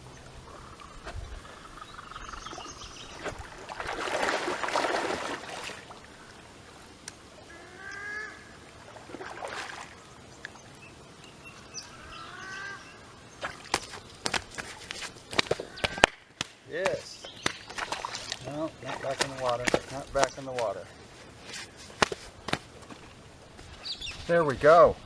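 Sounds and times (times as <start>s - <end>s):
water splashing: 2.4s - 6.5s, 8.6s - 10.2s, 13.4s - 16.1s, 16.9s - 20.7s.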